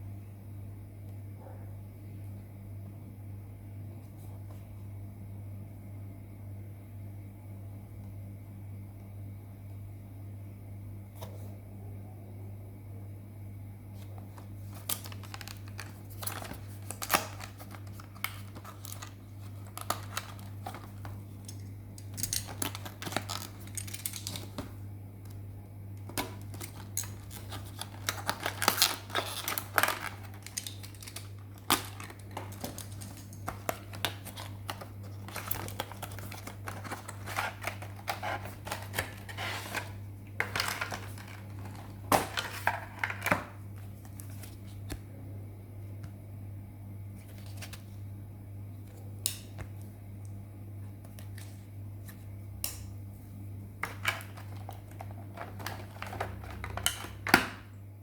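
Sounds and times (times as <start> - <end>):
steady low hum: 0.0 - 58.0
packaging crinkling and clicking: 14.1 - 25.4, 26.0 - 44.7, 53.8 - 57.7.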